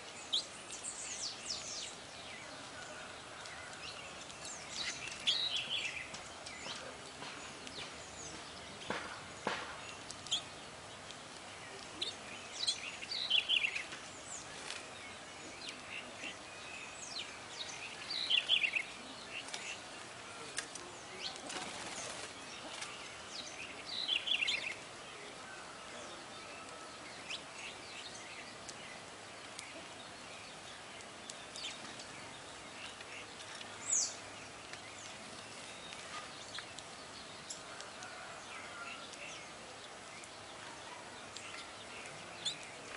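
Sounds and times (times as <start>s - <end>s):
songbirds chirping: 0.0s - 42.9s
steady background hiss: 0.0s - 42.9s.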